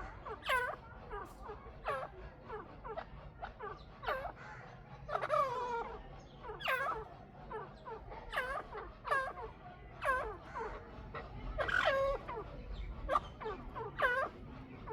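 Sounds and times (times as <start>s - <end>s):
partridges calling: 11.6s - 14.9s.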